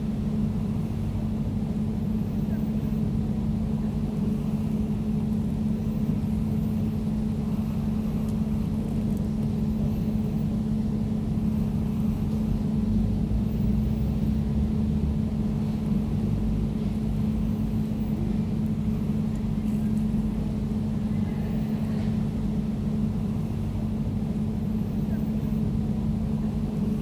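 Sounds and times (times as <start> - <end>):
air conditioner humming: 0.0 - 27.0.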